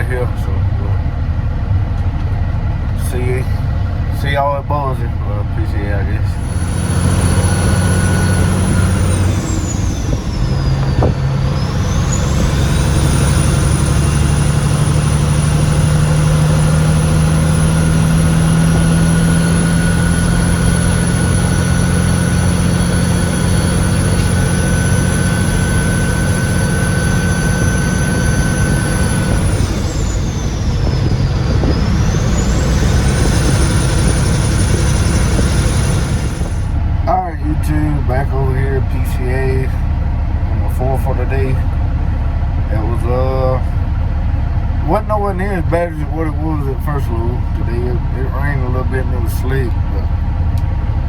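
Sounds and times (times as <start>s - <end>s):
truck diesel engine running: 0.0s - 51.0s
high whine: 2.9s - 51.0s.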